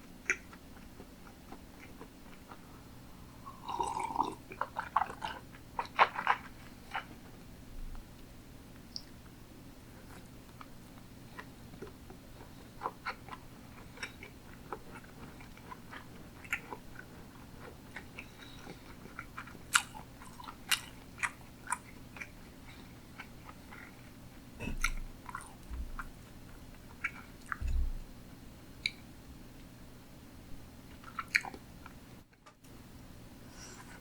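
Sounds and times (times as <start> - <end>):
wet chewing mouth sounds: 3.5 - 7.2, 10.0 - 28.0, 30.9 - 31.6
low thumps: 24.6 - 26.1, 27.6 - 28.2.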